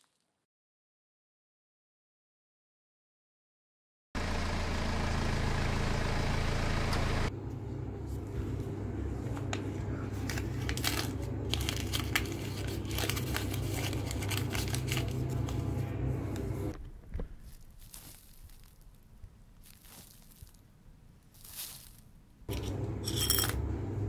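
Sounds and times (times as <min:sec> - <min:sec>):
paper crinkling: 0:09.5 - 0:15.8, 0:17.1 - 0:22.1
scratchy scraping on sand: 0:21.3 - 0:22.1
metal tin clicks and clinks: 0:22.5 - 0:23.6.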